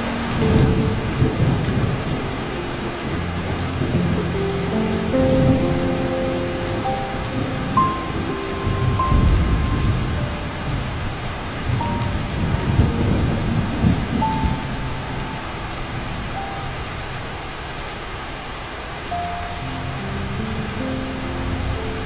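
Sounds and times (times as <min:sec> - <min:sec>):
heavy rain: 0:00.0 - 0:22.0
slow piano notes: 0:00.0 - 0:22.0
low thunder rolling: 0:00.4 - 0:17.6.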